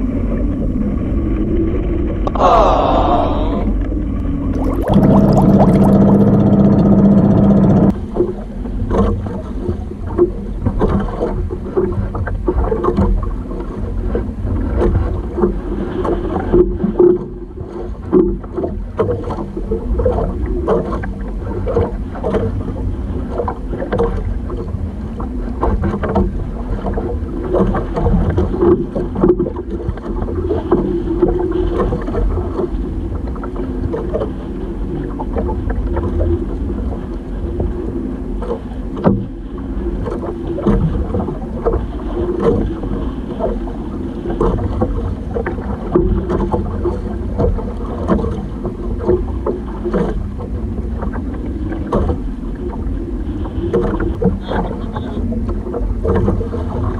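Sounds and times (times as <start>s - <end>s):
wind: 0.0s - 5.0s, 7.9s - 56.9s
boat engine running: 0.0s - 56.9s
water splashing: 2.3s - 10.2s
loud buzzing tone: 4.6s - 7.9s.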